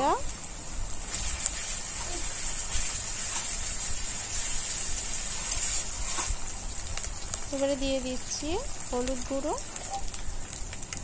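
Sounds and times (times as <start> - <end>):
onions frying in oil: 0.0 - 11.0
spatula stirring: 1.1 - 6.5.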